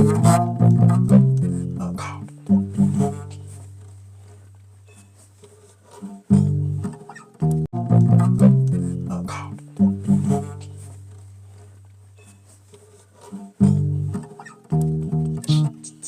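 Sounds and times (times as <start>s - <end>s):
bass guitar notes: 0.0s - 3.8s, 6.2s - 11.5s, 13.4s - 16.0s.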